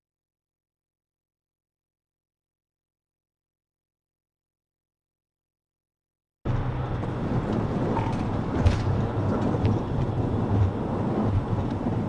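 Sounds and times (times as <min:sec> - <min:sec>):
moving car rumble: 0:06.4 - 0:12.0.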